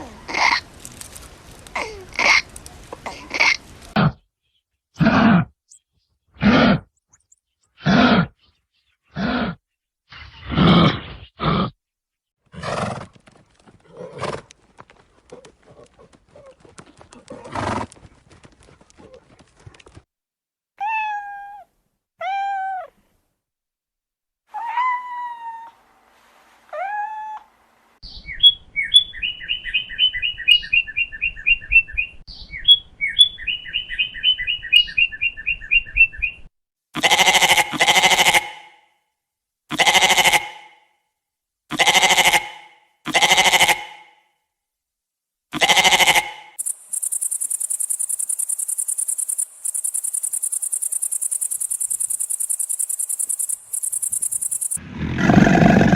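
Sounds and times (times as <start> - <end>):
cat meowing: 20.8 - 23.0
loud bleats: 37.0 - 38.8, 39.7 - 40.8, 41.7 - 44.1, 45.5 - 46.6
rapid high chirping: 46.6 - 54.8
steady high chirring: 46.6 - 54.8.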